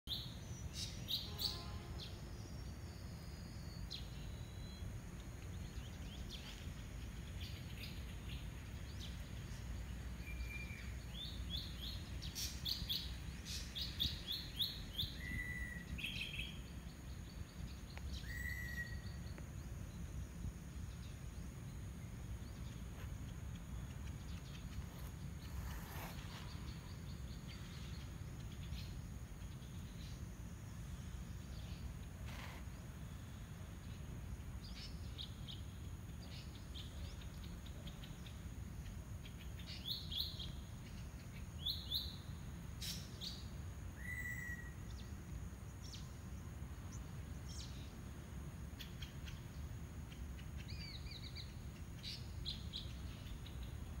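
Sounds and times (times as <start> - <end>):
birds chirping: 0.1 - 48.1
bird whistle: 18.2 - 19.1, 44.0 - 44.8.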